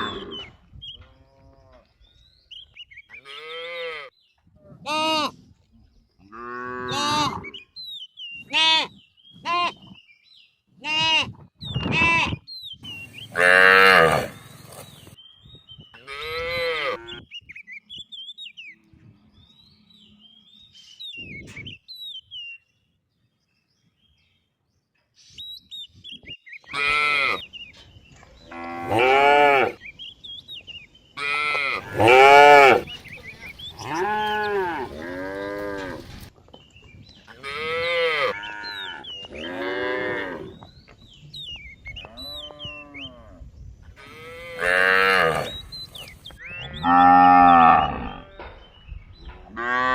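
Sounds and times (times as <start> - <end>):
cattle mooing: 13.3 - 14.4, 31.2 - 36.2, 46.6 - 48.4.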